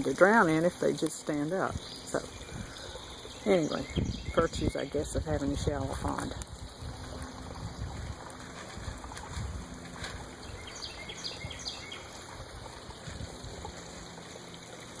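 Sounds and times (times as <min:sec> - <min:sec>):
waterfall running into pond: 0:00.0 - 0:15.0
bird chirping: 0:01.8 - 0:05.0, 0:10.4 - 0:12.2.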